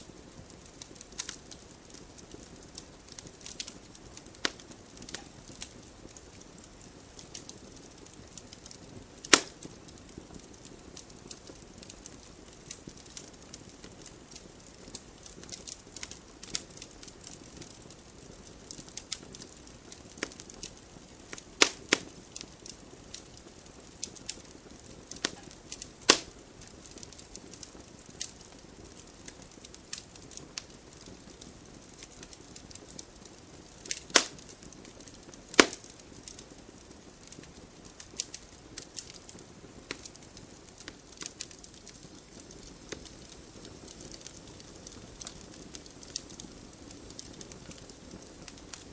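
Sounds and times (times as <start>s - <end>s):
wood fire hissing and crackling: 0.0s - 48.9s
loud sharp pops from logs: 9.3s - 9.6s, 21.6s - 22.1s, 26.1s - 26.3s, 33.9s - 34.4s, 35.5s - 35.9s.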